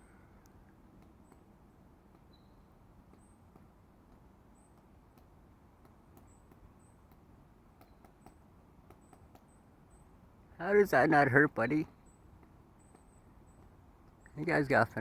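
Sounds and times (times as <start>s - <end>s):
woodpecker tapping on tree: 0.4s - 15.0s.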